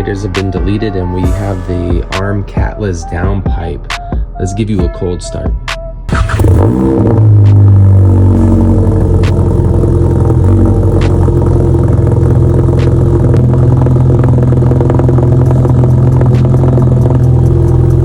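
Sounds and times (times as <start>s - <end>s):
car engine idling loudly: 6.1s - 18.0s.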